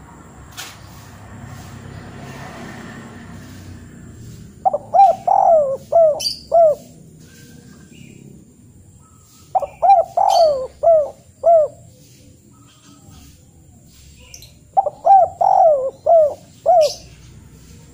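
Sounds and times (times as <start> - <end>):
bird calling: 4.3 - 8.3, 8.9 - 17.8.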